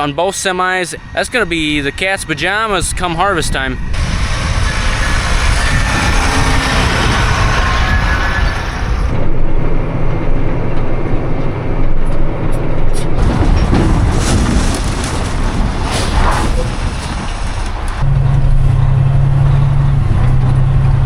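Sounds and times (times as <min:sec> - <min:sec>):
wind and road noise: 0:00.0 - 0:21.0
vehicle engine running: 0:17.8 - 0:21.0.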